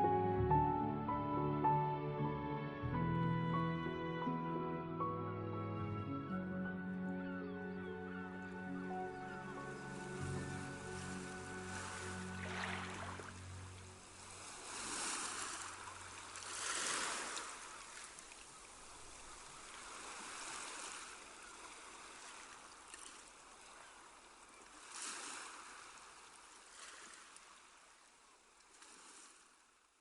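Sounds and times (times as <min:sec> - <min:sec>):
ocean waves washing on shore: 0:09.5 - 0:28.0.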